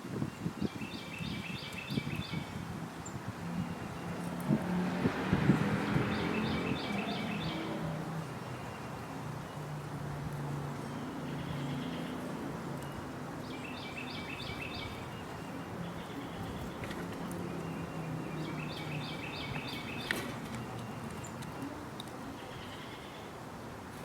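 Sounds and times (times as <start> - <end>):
small bird calling: 5.9 - 9.6, 11.0 - 23.4.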